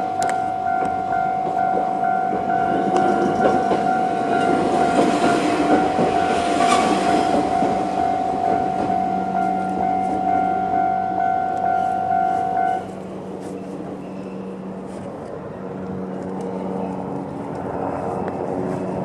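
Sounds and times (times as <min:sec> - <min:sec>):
electronic crossing warning bell: 0:00.0 - 0:13.0
train wheels clattering: 0:00.2 - 0:10.6.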